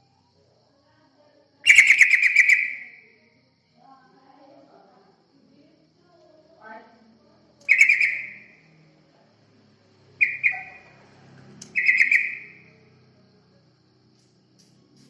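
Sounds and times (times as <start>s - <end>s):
bulbul chattering calls: 1.7s - 2.9s, 7.6s - 8.5s, 10.2s - 11.0s, 11.7s - 12.6s.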